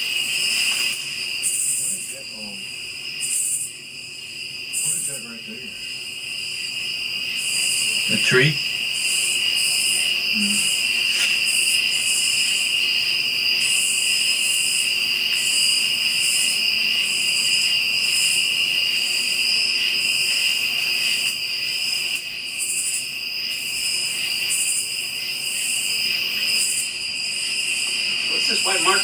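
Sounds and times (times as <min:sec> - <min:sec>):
crickets and insects trilling: 0:00.0 - 0:29.0
pulsing high insect trill: 0:00.0 - 0:29.0.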